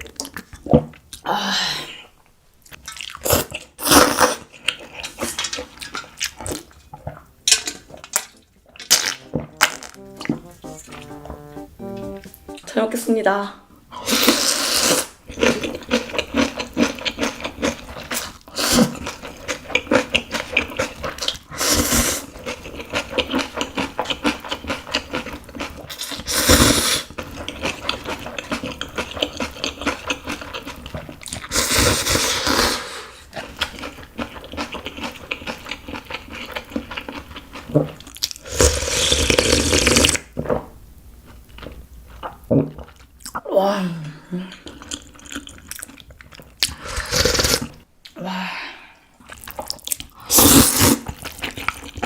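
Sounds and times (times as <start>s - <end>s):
slurping noodles: 46.6s - 47.8s, 50.3s - 51.9s
wet chewing and smacking: 51.1s - 52.0s.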